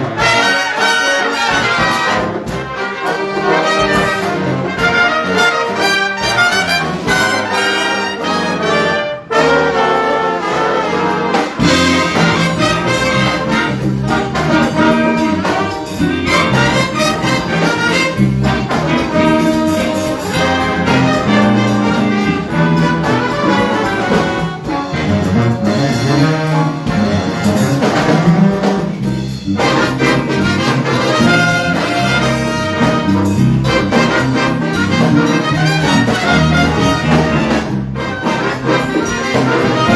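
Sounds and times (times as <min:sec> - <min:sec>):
big band jazz: 0:00.0 - 0:39.9.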